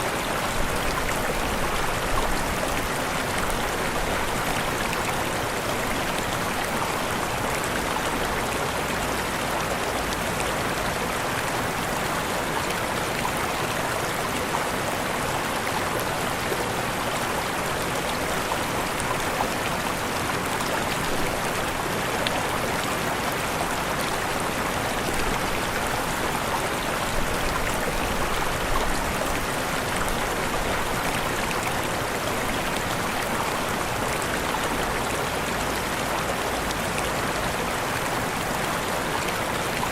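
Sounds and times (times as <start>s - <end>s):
waterfall rushing: 11.3s - 39.9s.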